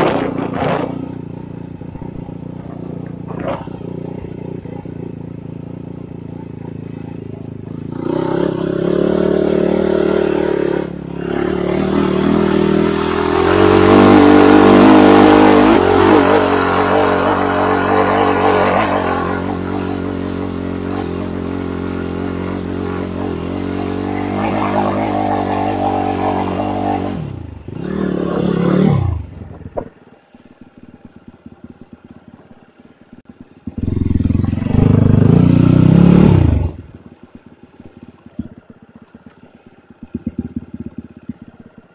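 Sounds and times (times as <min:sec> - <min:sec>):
motorcycle engine revving: 0:00.0 - 0:41.9
clatter: 0:36.7 - 0:41.9.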